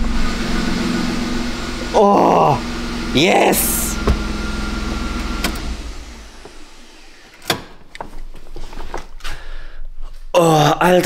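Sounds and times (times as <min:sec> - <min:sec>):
car engine running: 0:00.0 - 0:07.1.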